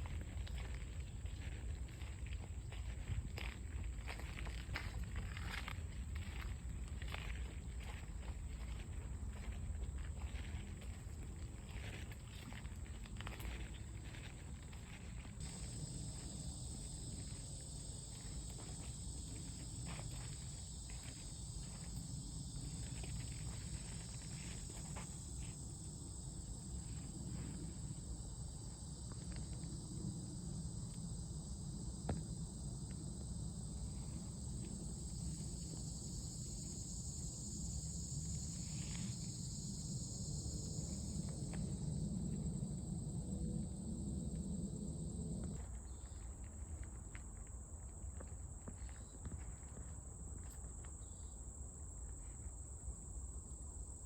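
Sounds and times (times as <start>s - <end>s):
insects droning high-pitched: 0.0s - 54.0s.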